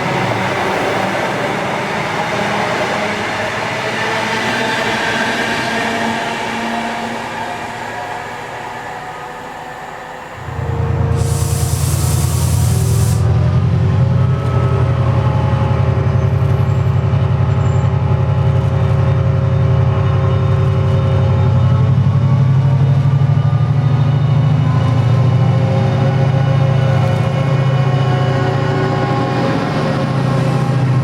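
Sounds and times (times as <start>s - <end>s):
diesel locomotive engine throbbing: 0.0s - 31.0s
air hissing: 10.6s - 13.3s.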